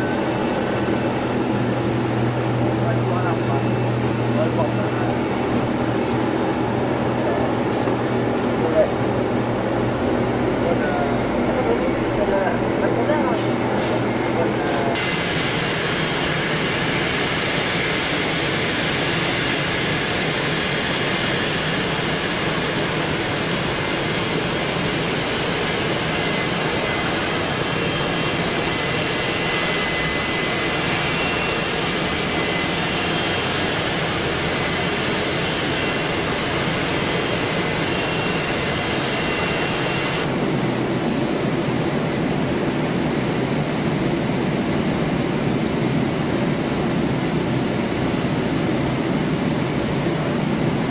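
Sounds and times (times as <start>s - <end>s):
jet engines roaring: 0.0s - 50.9s
high whining tones: 7.2s - 40.5s.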